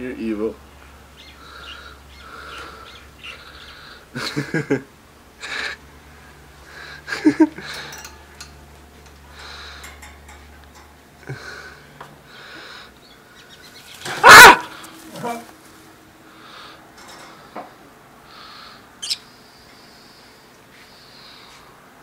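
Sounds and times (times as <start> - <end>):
pet bird calling: 19.0 - 19.3.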